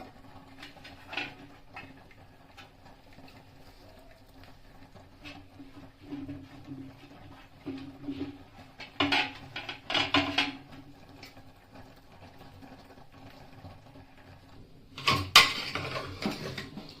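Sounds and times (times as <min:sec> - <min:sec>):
cookware scraping and clattering: 0:00.5 - 0:03.4, 0:05.1 - 0:11.0, 0:15.0 - 0:17.0.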